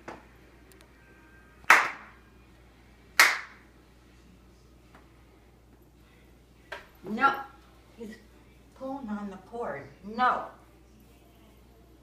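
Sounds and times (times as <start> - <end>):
sharp hand claps: 1.7 - 2.1, 3.2 - 3.6.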